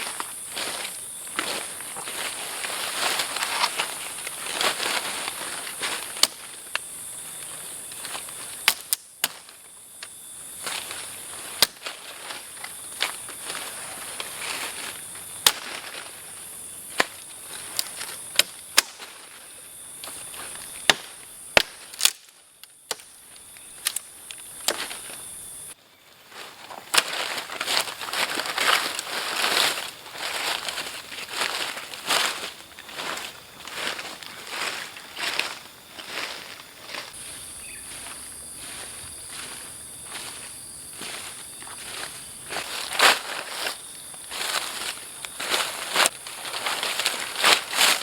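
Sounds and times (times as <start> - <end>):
high-pitched insect chorus: 0.0 - 48.0
sharp snaps and pops: 8.6 - 10.1, 20.9 - 24.9.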